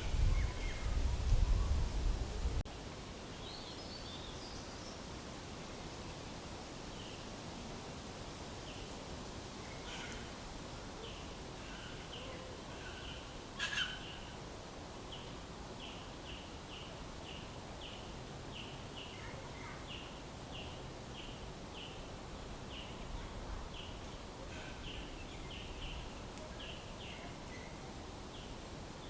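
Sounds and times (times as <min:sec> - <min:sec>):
faint outdoor background: 0:00.0 - 0:29.0
bird calling: 0:11.6 - 0:14.3.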